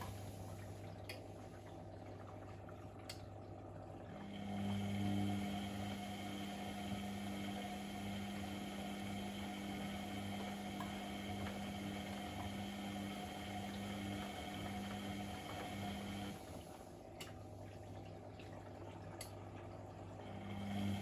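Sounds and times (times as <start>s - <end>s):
moving water: 0.0s - 4.9s, 16.4s - 20.4s
washing machine pump hum: 0.0s - 21.0s.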